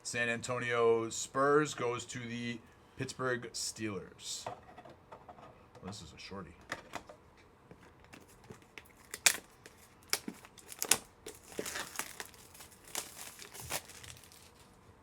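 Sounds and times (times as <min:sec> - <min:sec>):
plastic packaging crinkling and tearing: 0:08.1 - 0:14.8.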